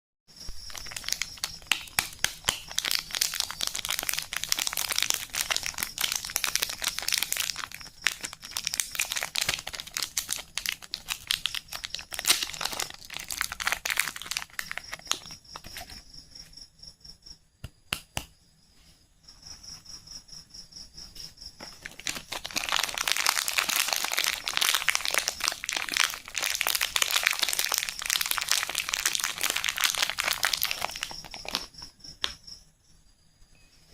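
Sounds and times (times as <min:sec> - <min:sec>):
packaging crinkling and tearing: 0:00.6 - 0:16.0, 0:21.7 - 0:31.7.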